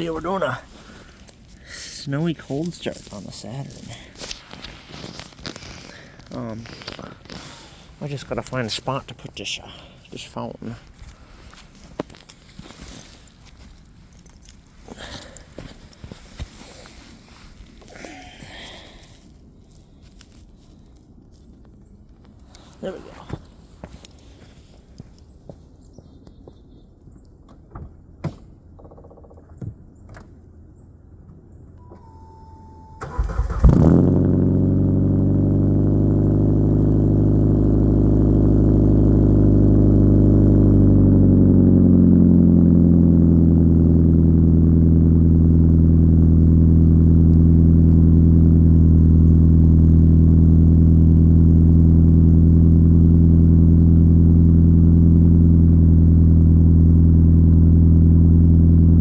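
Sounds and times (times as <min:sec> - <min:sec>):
car engine cranking and idling: 0:00.0 - 0:20.4, 0:31.2 - 0:59.0
short tone: 0:31.8 - 0:33.3.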